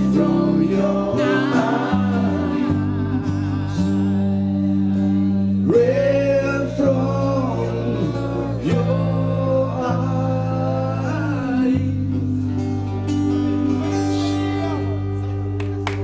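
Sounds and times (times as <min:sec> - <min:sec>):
person singing long wordless notes: 0:00.0 - 0:14.8
guitar and bass chords: 0:00.0 - 0:16.0.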